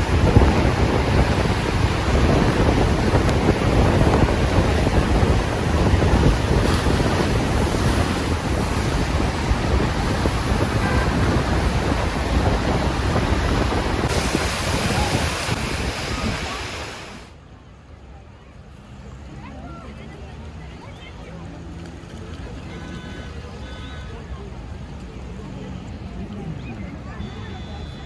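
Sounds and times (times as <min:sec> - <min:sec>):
wind buffeting microphone: 0:00.0 - 0:17.3
heavy rain: 0:00.0 - 0:17.4.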